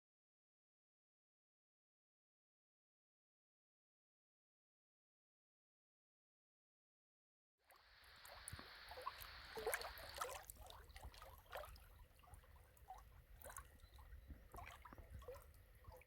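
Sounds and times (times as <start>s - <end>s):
water lapping and gurgling: 7.7s - 16.0s.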